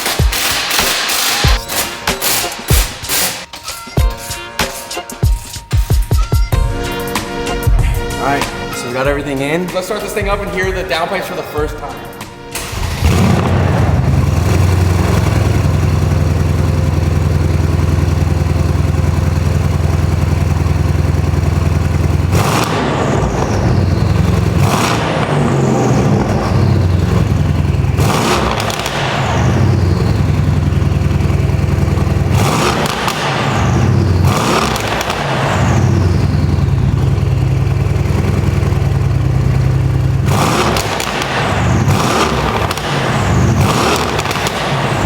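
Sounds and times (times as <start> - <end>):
car engine revving: 0.0 - 3.5, 7.2 - 45.0
car engine idling loudly: 12.6 - 45.0.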